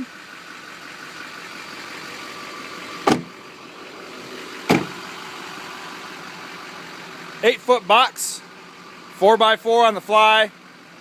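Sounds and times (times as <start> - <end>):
diesel engine idling: 0.0 - 11.0
sharp knock: 3.1 - 3.3.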